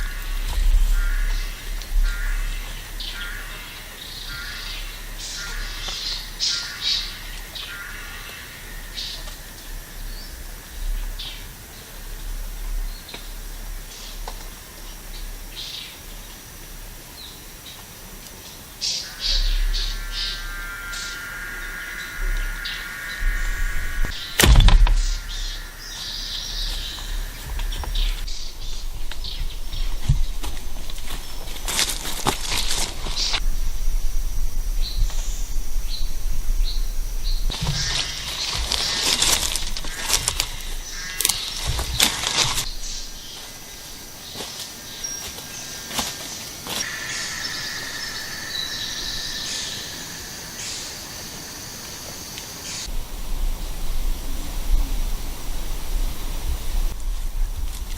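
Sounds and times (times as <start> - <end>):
birds chirping: 0.0 - 57.9
insects buzzing: 0.0 - 57.9
sharp knock: 24.4 - 25.2.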